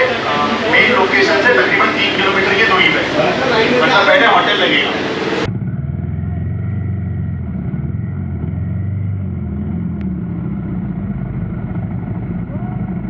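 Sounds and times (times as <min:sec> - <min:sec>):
motorcycle engine running: 0:05.4 - 0:13.0.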